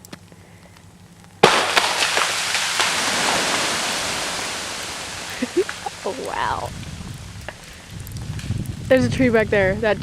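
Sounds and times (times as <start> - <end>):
ice-laden branches breaking: 1.4 - 6.7
ice-coated tree cracking: 1.4 - 8.9.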